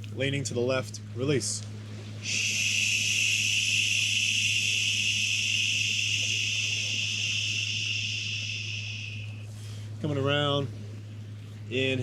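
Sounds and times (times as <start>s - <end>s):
person exhaling shhh: 2.2s - 9.8s.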